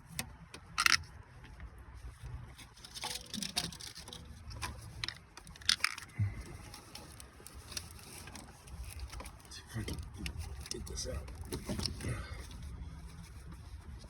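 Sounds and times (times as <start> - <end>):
hand tools clicking and rattling: 0.6 - 1.0, 2.8 - 6.1.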